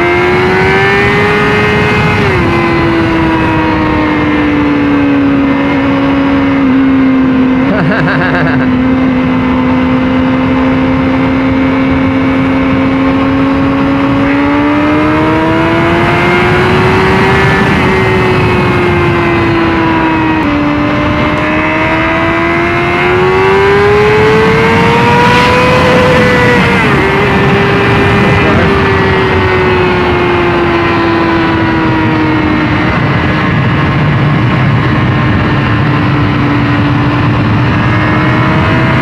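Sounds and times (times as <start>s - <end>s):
rushing wind noise: 0.0s - 7.8s, 8.6s - 39.0s
motorcycle engine revving: 0.0s - 39.0s.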